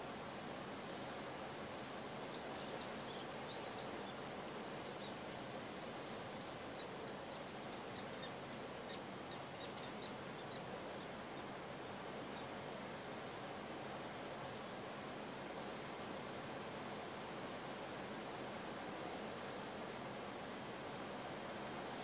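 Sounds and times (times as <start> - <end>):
steady wind: 0.0 - 22.0
songbird chirping: 2.1 - 11.6.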